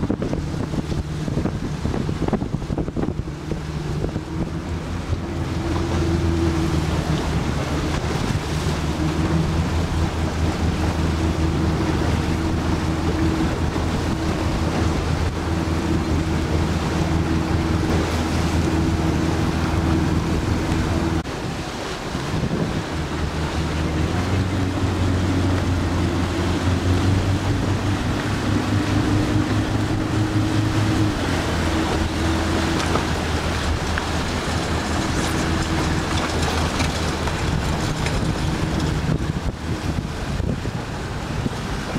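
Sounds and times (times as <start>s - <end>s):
motorboat engine running: 0.0s - 41.9s
water noise: 0.0s - 41.9s
wind: 0.0s - 41.9s.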